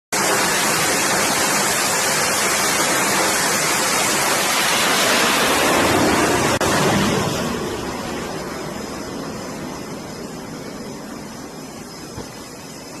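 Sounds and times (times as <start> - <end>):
loud steady rushing noise: 0.1 - 13.0.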